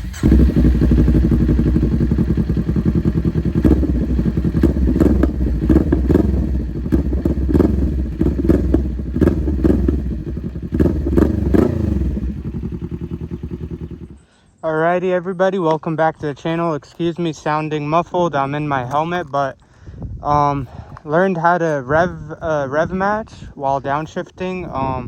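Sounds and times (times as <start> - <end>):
motorcycle engine revving: 0.0 - 14.2.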